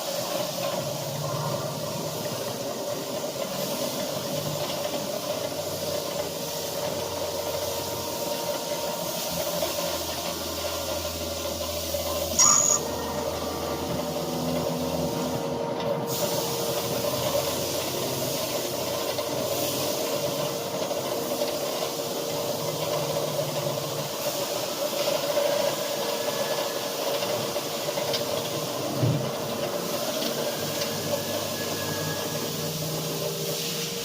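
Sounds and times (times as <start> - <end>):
cnc router spindle hum: 5.5 - 18.3.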